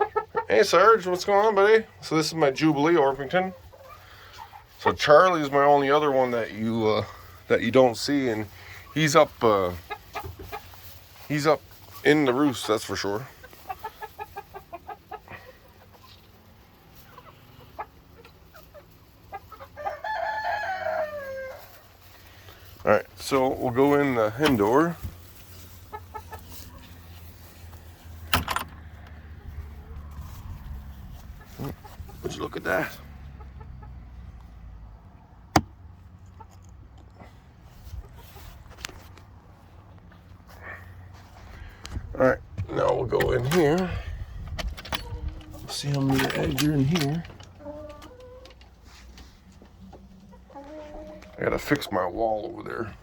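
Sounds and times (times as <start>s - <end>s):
chickens clucking: 0.0s - 53.0s
rooster crowing: 19.8s - 21.6s.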